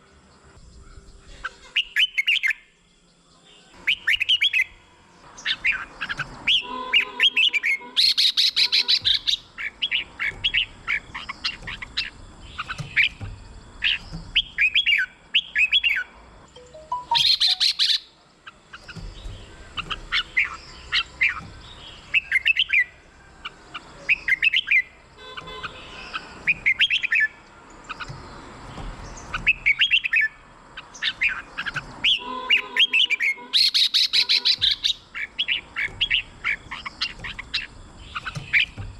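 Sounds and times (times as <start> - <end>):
birds singing whistled notes: 0.0 - 38.9
harsh bird call bursts: 5.4 - 13.2, 16.7 - 18.1, 29.4 - 38.7.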